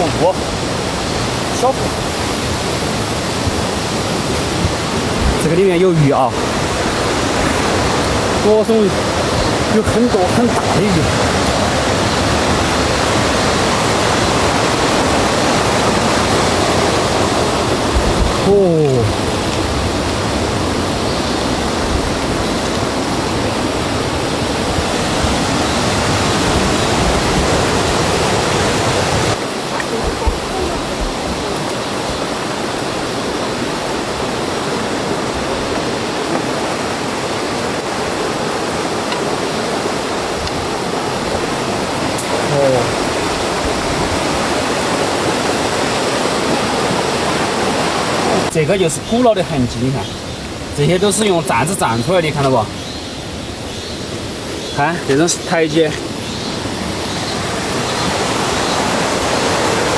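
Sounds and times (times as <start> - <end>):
fast-flowing water rushing: 0.0 - 59.9.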